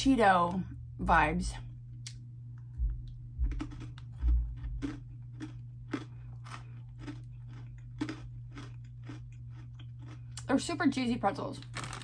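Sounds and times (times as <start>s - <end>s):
steady low hum: 0.0s - 12.0s
dull low thumps: 2.7s - 5.3s
crunchy chewing: 3.0s - 10.5s.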